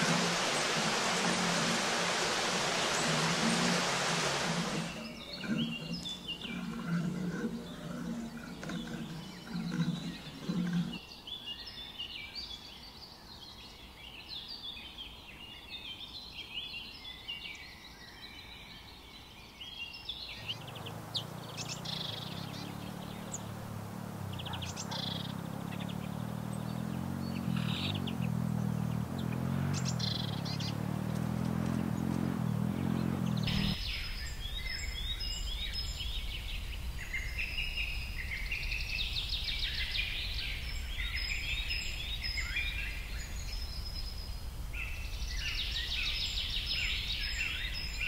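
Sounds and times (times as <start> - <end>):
doves cooing: 0.0 - 11.0, 20.4 - 33.8
small birds chirping: 0.0 - 48.0.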